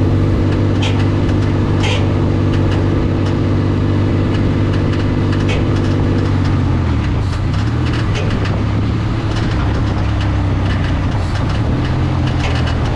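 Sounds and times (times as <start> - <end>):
vehicle engine running: 0.0 - 12.9
clicking rattle: 4.3 - 8.7, 9.3 - 12.9.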